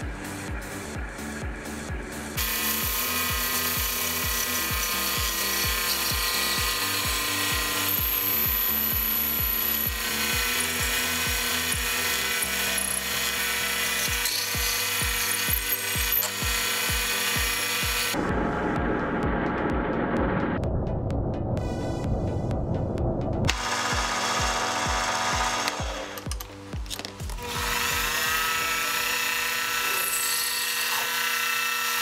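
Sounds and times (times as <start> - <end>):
background music with steady beat: 0.0 - 30.4
lathe motor running: 1.6 - 19.0, 23.5 - 26.2, 27.3 - 32.0
lathe tool cutting brass: 2.4 - 18.2, 23.5 - 26.4, 27.3 - 32.0.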